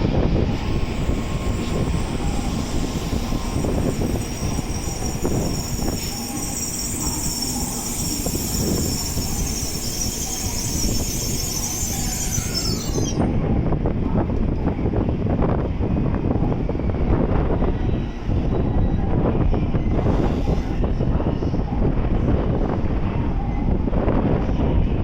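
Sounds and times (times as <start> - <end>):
train rumble: 0.0 - 25.0
wind buffeting microphone: 0.0 - 25.0
train wheels squealing: 0.5 - 13.5, 19.7 - 21.6.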